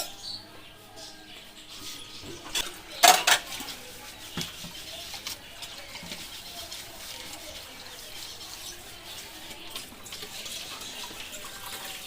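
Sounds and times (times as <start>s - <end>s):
dishes clattering: 2.2s - 6.6s.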